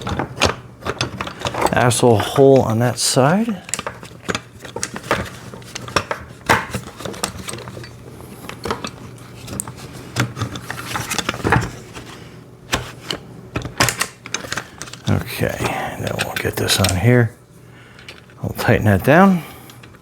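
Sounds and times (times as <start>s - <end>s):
metal and plastic clicks and knocks: 0.0s - 2.7s.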